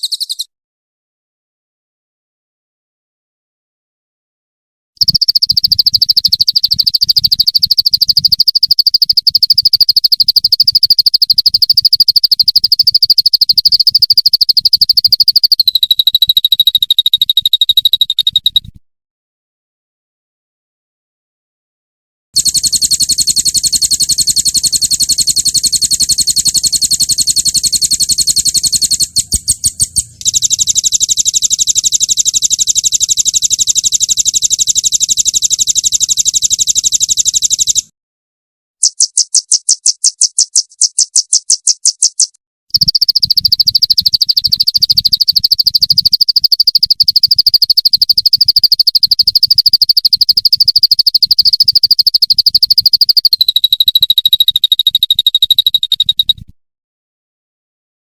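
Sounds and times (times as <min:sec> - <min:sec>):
songbird trilling: 0:00.0 - 0:00.5, 0:05.0 - 0:18.7, 0:22.5 - 0:33.7, 0:38.8 - 0:56.4.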